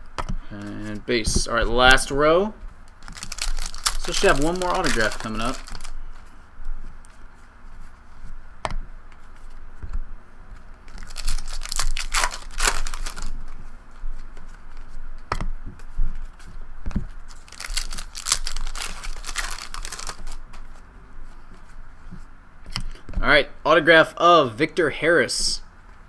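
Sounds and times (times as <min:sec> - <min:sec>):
foil wrapper tearing and crinkling: 0:03.0 - 0:06.0, 0:10.9 - 0:13.4, 0:17.3 - 0:20.5.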